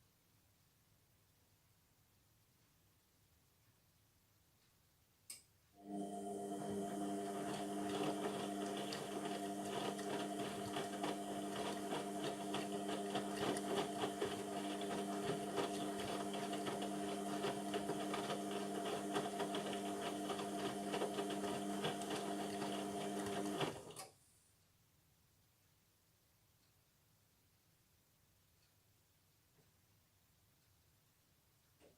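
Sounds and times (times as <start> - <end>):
washing machine drum motor hum: 5.8 - 23.9.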